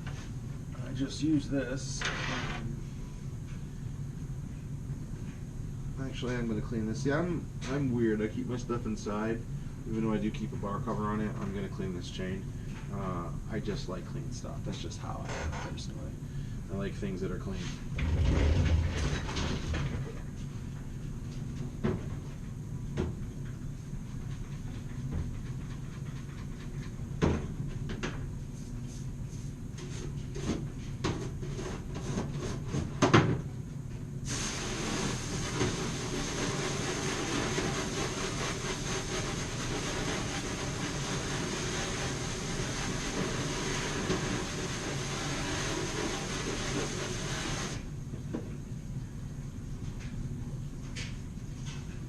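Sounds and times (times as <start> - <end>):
compressed air hissing: 34.2 - 47.8.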